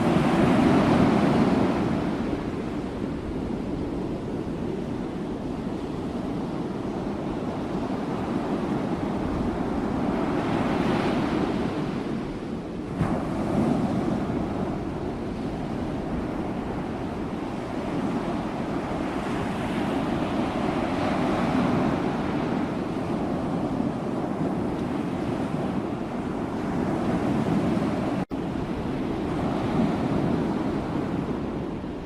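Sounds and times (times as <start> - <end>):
sea waves breaking on shore: 0.0 - 32.0.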